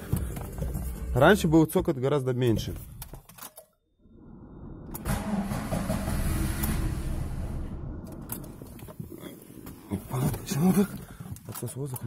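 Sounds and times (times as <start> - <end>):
car engine starting and idling: 4.6 - 10.3.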